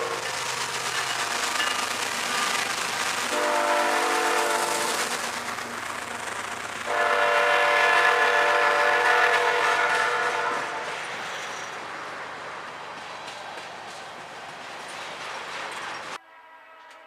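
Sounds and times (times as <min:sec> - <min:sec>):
freight train wheels rumbling: 0:00.0 - 0:16.2
locomotive air horn: 0:03.3 - 0:05.0, 0:06.9 - 0:11.0, 0:16.2 - 0:17.0.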